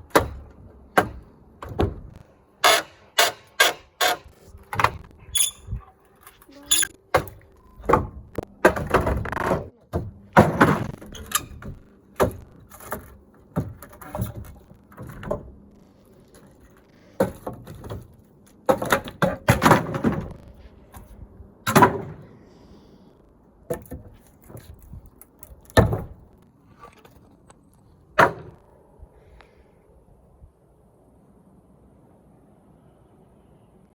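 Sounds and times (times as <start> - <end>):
knocks and clatters of roof demolition: 7.9 - 15.5, 16.3 - 21.1.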